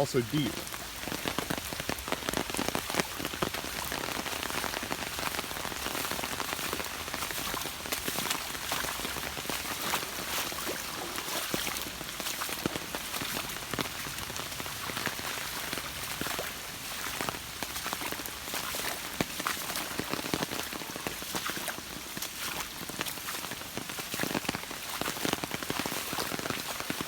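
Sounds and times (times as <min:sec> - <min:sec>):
raindrops ticking: 0:00.0 - 0:10.2
heavy rain: 0:00.0 - 0:27.0.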